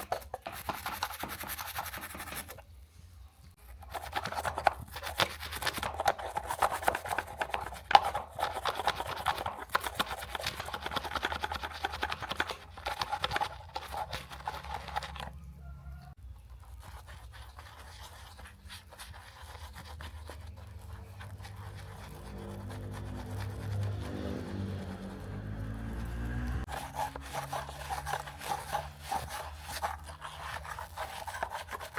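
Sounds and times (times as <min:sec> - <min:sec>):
small brush scrubbing: 0:03.5 - 0:15.5, 0:16.1 - 0:31.9.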